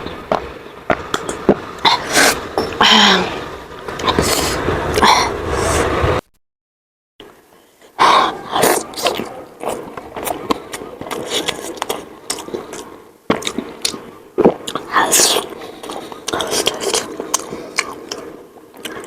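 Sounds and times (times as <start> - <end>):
wet chewing: 8.3 - 19.0
mouth clicks and smacks: 8.5 - 19.0.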